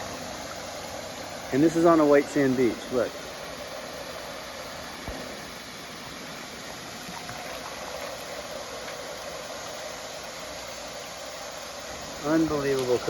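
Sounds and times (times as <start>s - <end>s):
waterfall splashing onto sand: 12.2s - 13.0s.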